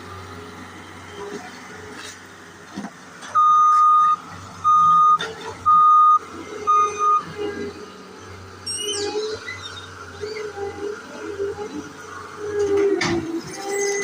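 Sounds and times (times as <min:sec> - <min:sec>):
engine humming: 0:00.0 - 0:14.0
backup alarm beeping: 0:03.4 - 0:07.3.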